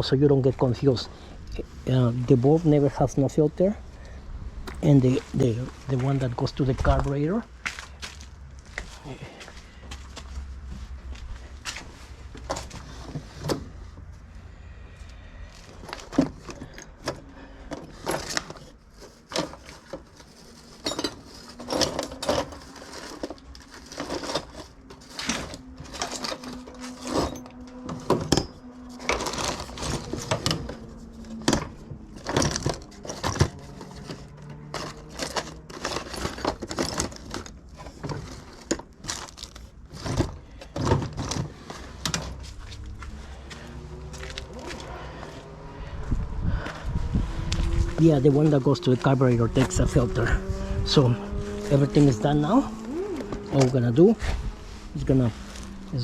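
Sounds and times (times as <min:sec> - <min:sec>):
hands handling plastic parts: 0:15.5 - 0:43.2.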